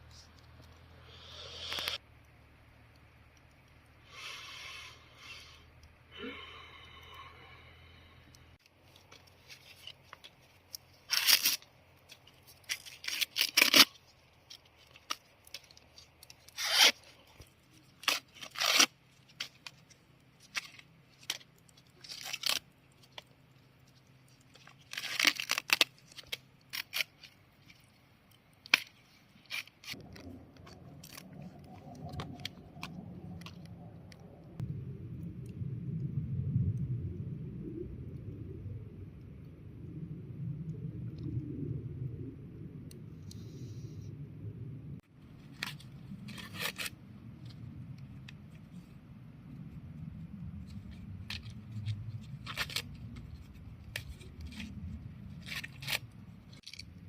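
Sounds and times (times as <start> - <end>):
tearing and scraping rasps: 0.0 - 2.0, 8.6 - 34.6, 45.4 - 49.0, 50.4 - 57.0
steady low noise: 30.0 - 46.3.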